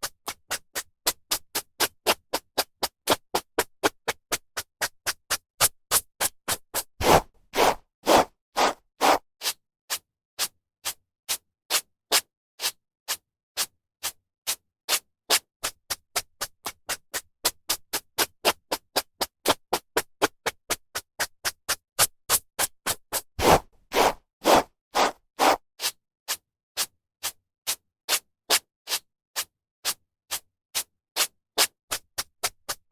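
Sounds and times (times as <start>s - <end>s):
hairbrush brushing hair: 7.0s - 9.2s, 23.4s - 25.6s.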